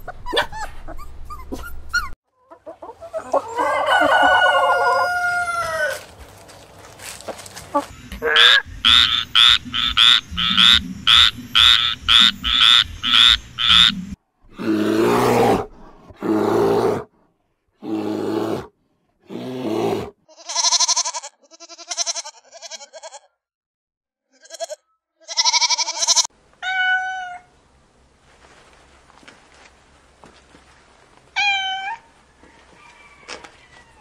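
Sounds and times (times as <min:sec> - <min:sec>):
harsh animal calls: 0:07.7 - 0:17.1
frog croaking: 0:07.9 - 0:14.2
young goat bleating: 0:20.3 - 0:23.4, 0:24.3 - 0:27.5
cat meowing: 0:24.5 - 0:27.5, 0:31.4 - 0:32.0.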